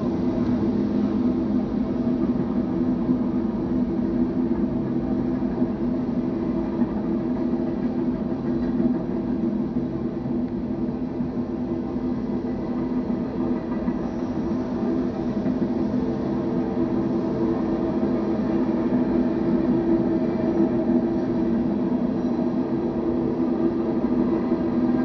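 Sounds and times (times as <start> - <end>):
freight train passing: 0.0 - 25.0.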